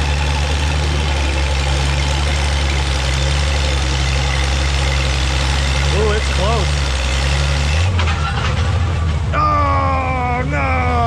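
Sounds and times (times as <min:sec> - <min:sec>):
tractor engine running under load: 0:00.0 - 0:11.0.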